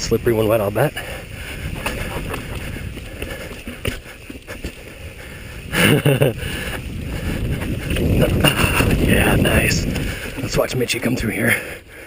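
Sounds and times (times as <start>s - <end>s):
wind on microphone: 0.0s - 11.1s
bike rattling knocks and clicks: 1.5s - 10.6s
low rumble: 5.0s - 10.6s.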